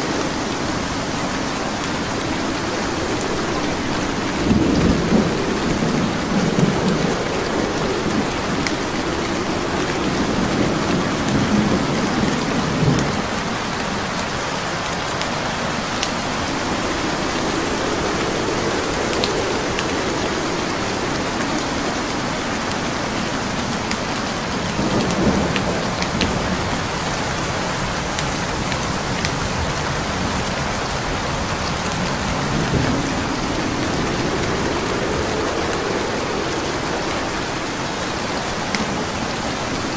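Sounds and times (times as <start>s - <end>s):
steady rain: 0.0s - 39.9s
low rumbles of thunder: 0.1s - 39.9s.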